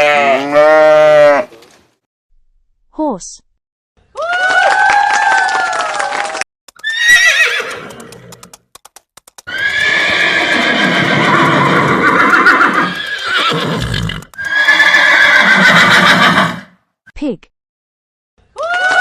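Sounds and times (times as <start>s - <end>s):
horse whinnying: 0.0s - 1.5s, 6.8s - 8.5s, 9.5s - 16.7s
sharp clicks: 7.6s - 9.6s, 14.0s - 14.5s.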